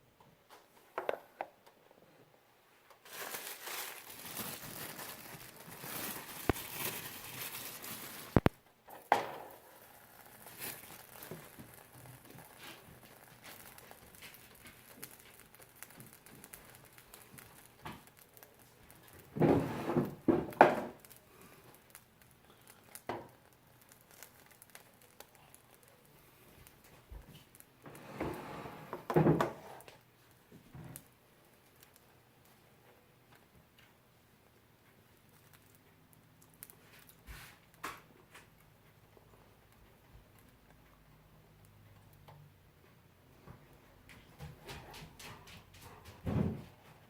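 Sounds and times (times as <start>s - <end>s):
packaging crinkling: 3.0s - 8.6s, 9.5s - 19.4s, 20.0s - 26.1s.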